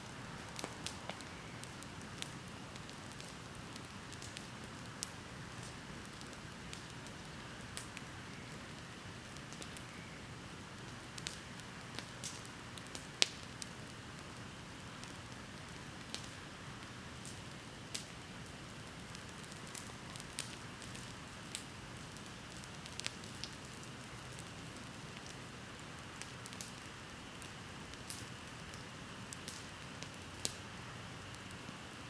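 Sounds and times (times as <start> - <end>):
bonfire crackling and popping: 0.0 - 32.0.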